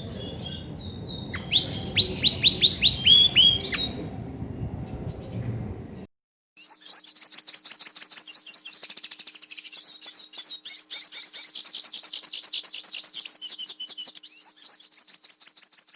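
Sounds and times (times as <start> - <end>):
canary singing trills: 0.0 - 6.0
faint steady hum: 0.0 - 6.1.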